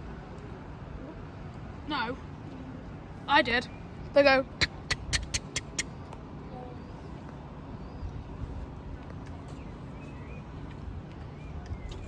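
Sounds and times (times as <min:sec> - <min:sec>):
faint chirps: 0:04.6 - 0:05.8.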